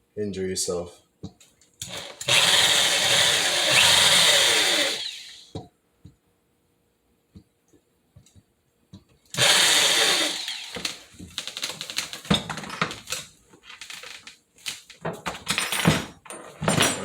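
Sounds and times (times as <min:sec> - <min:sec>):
power drill boring: 0:01.8 - 0:05.5, 0:09.4 - 0:12.2.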